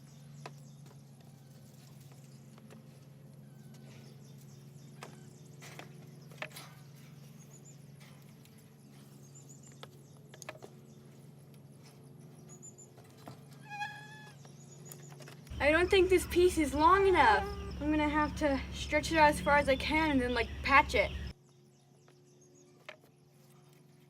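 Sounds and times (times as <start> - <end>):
low hum: 0.0 - 22.7
animal call: 13.5 - 14.4, 15.5 - 21.3.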